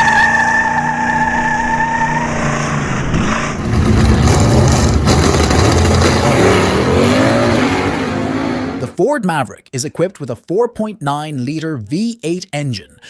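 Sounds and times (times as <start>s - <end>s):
car engine rumble: 0.0s - 8.9s.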